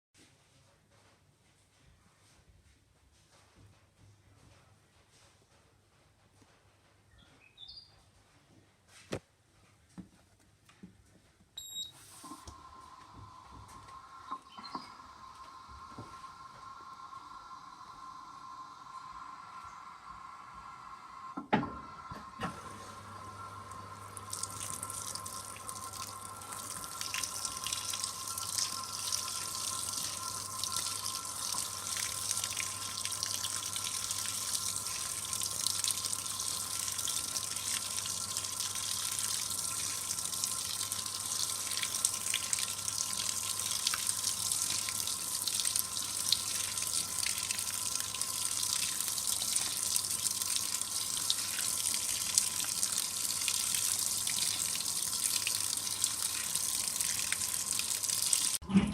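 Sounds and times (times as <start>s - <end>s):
faint steady whine: 11.6s - 24.3s
water rushing into washing machine: 12.1s - 58.9s.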